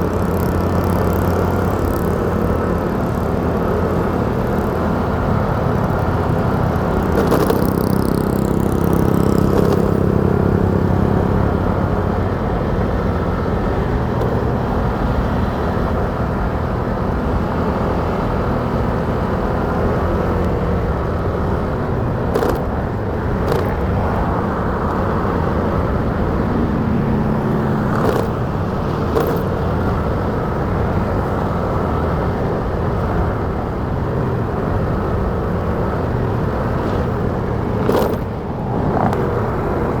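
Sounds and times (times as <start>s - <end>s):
motorcycle engine rumble: 0.0s - 40.0s
vehicle passing: 20.8s - 32.0s, 34.9s - 40.0s.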